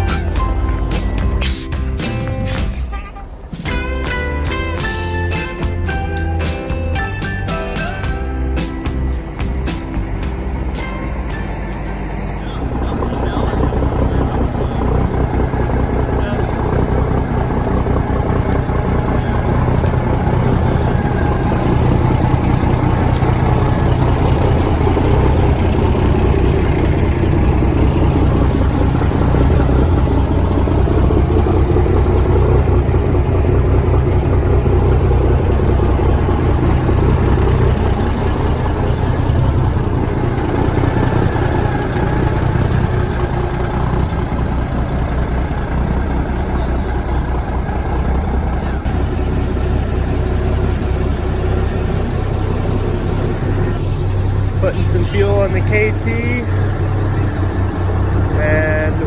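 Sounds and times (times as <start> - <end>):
diesel truck engine running: 0.0 - 59.0.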